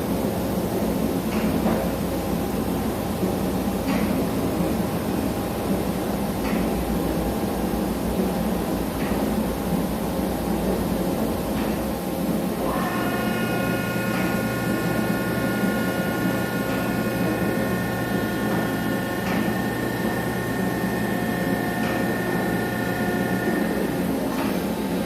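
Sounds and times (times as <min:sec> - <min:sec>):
constant machine noise: 0:00.0 - 0:25.0
drilling machine whine: 0:12.6 - 0:24.2.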